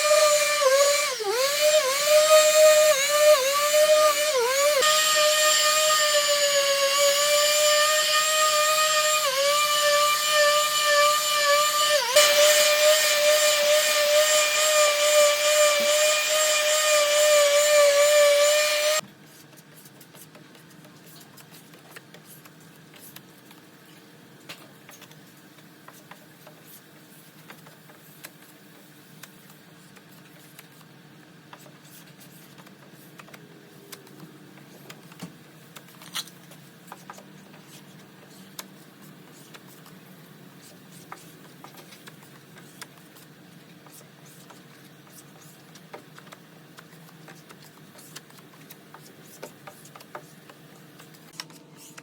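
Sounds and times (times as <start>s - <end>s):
power tool whining: 0.0s - 19.0s.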